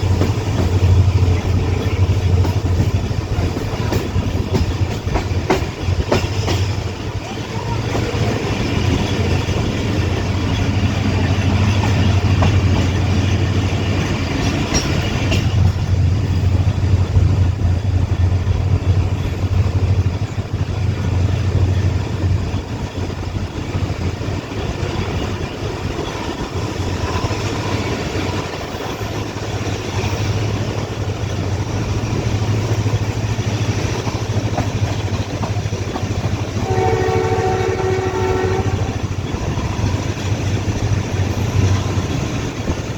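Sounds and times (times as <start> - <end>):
train rumbling along track: 0.0 - 42.9
locomotive horn: 36.5 - 39.4.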